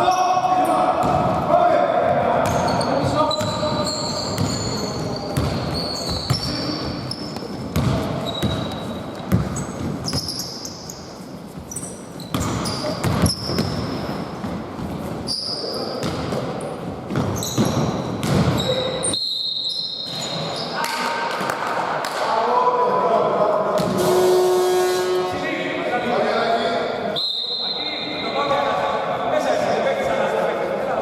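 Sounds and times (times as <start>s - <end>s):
basketball bouncing on court: 2.4s - 10.4s, 12.2s - 15.1s, 16.0s - 18.8s
sneaker squeaks: 2.4s - 21.0s, 26.4s - 28.5s.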